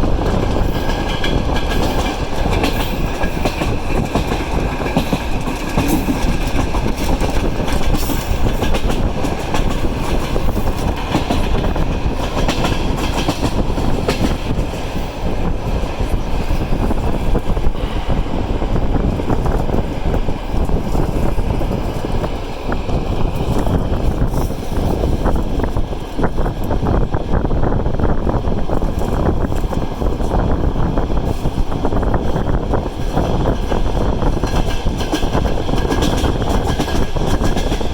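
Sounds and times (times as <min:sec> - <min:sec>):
wheels clicking over rail joints: 0:00.0 - 0:17.7, 0:28.0 - 0:37.9
train rumbling on rails: 0:00.0 - 0:37.9.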